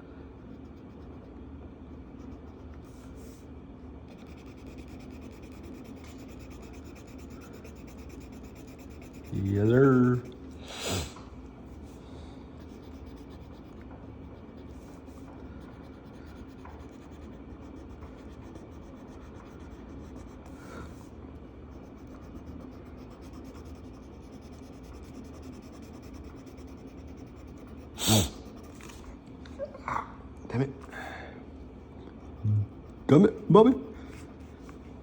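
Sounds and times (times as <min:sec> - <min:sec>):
steady low hum: 0:00.0 - 0:35.0
marker scratching on paper: 0:04.1 - 0:12.0, 0:12.6 - 0:29.2, 0:32.1 - 0:35.0.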